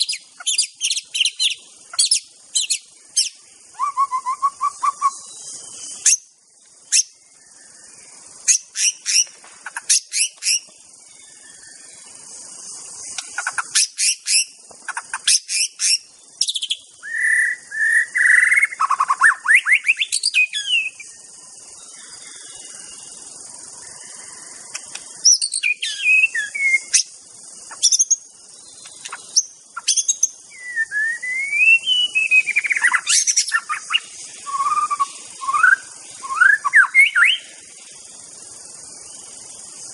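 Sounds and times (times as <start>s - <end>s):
bird singing chips and whistles: 0.0s - 6.3s, 8.4s - 10.8s, 13.1s - 21.1s, 24.7s - 37.5s
steady high hiss: 0.0s - 39.9s.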